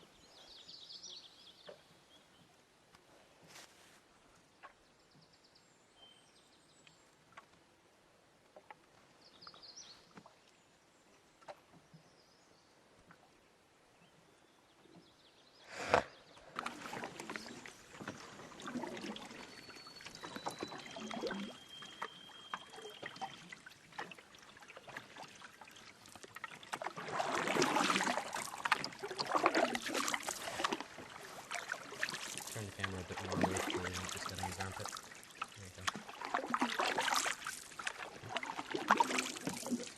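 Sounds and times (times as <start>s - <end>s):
water splashing from paddle strokes: 16.5s - 39.9s
faint bird chirps: 19.4s - 23.6s.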